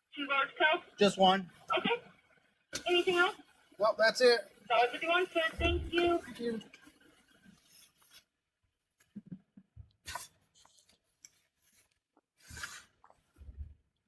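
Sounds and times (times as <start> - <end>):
rustling handling noises: 10.1 - 13.4.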